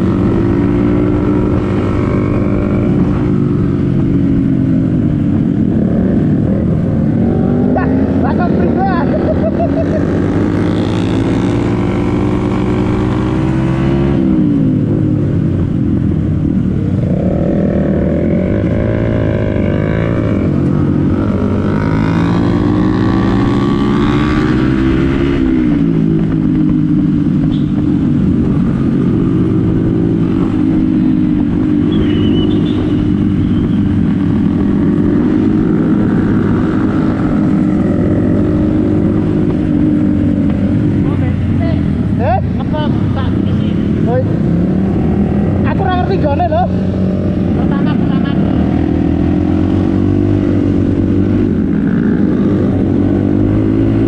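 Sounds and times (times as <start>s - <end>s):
motorcycle engine running: 25.6s - 48.2s.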